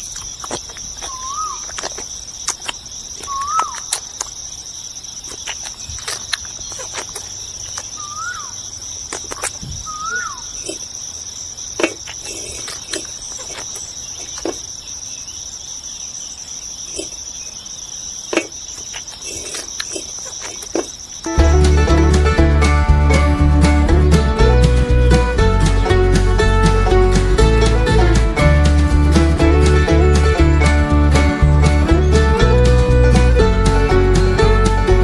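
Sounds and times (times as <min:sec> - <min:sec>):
insect chirring: 0:00.0 - 0:22.0
bird whistles: 0:01.1 - 0:01.6, 0:03.3 - 0:03.8, 0:08.0 - 0:08.5, 0:09.8 - 0:10.5.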